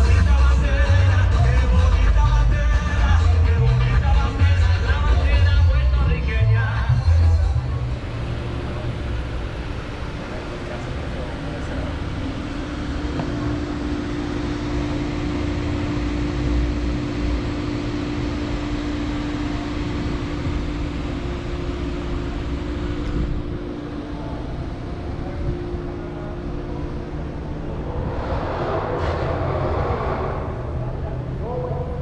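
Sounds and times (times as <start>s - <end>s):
vehicle engine rumbling: 0.0s - 32.0s
loud rushing sound: 26.7s - 31.5s.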